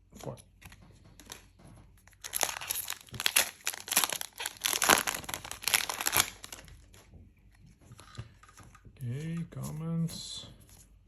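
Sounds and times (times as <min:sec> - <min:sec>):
plastic wrapper crinkling: 0:02.0 - 0:07.1.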